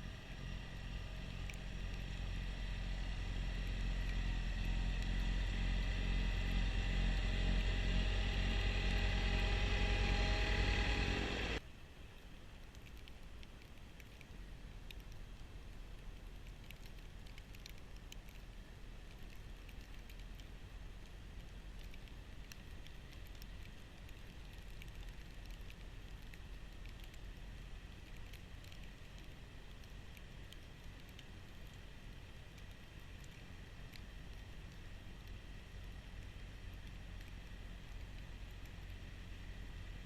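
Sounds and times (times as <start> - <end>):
low hum: 0.0 - 40.0
tractor diesel engine running: 0.6 - 11.6
faint ticks: 12.6 - 40.0.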